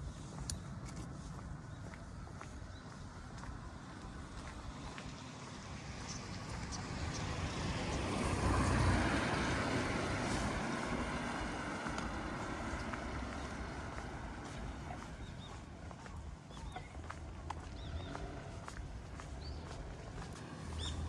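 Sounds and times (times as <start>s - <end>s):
car engine passing: 5.8s - 14.9s
tyres hissing on wet road: 6.9s - 14.4s.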